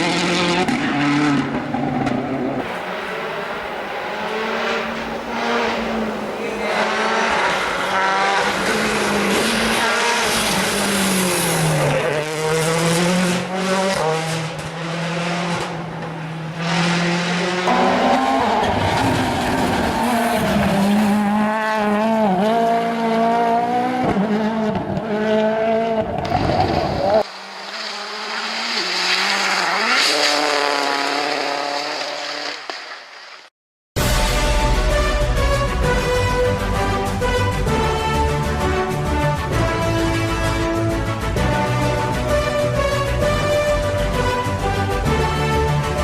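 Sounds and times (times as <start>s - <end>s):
car engine revving through gear changes: 0.0s - 27.3s, 28.0s - 32.2s.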